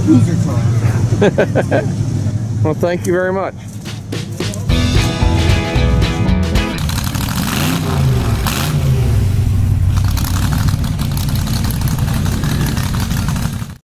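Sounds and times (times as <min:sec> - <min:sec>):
car engine revving: 0:04.7 - 0:13.8.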